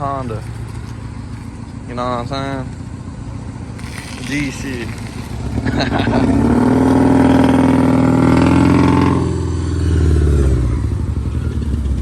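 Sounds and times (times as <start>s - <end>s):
car engine revving loud exhaust: 3.0s - 12.0s.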